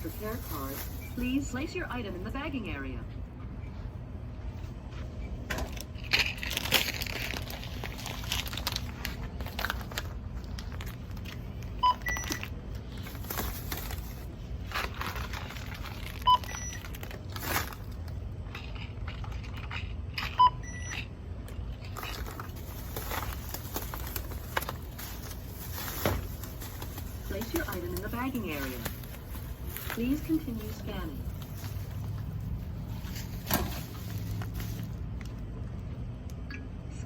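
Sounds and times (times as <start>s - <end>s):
plastic bags crinkling: 0.0s - 1.6s, 5.7s - 19.8s, 21.8s - 35.4s
barcode scanner beeps: 16.2s - 16.8s, 20.4s - 21.1s.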